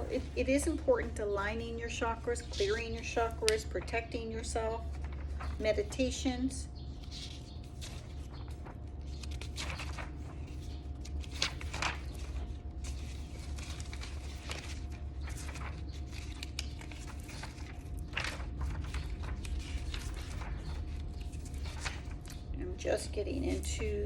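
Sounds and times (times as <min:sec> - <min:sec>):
low background hum: 0:00.0 - 0:24.0
paper pages being turned: 0:00.0 - 0:24.0.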